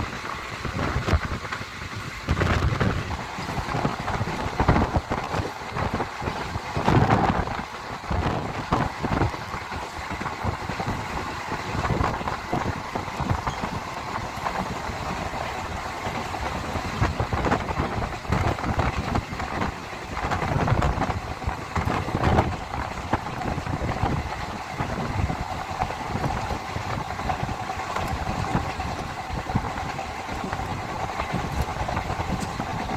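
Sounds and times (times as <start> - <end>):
train rumbling on track: 0.0 - 32.9.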